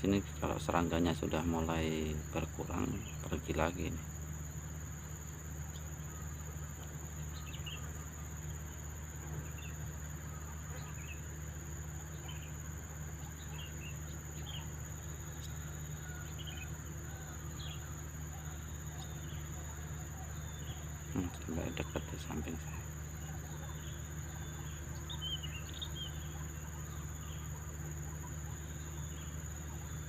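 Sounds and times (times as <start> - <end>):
bird chirps: 0.0 - 30.0
insect trilling: 0.0 - 30.0.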